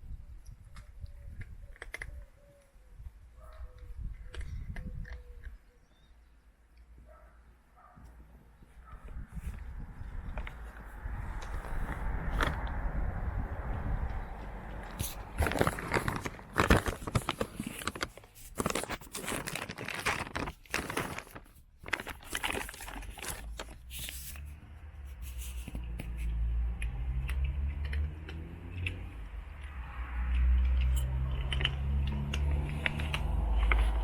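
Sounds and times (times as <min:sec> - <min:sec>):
cats crunching dry food: 0:00.6 - 0:02.3, 0:14.8 - 0:24.5, 0:25.2 - 0:34.0
low rumble: 0:09.2 - 0:16.4
food bag crinkling: 0:15.0 - 0:24.4.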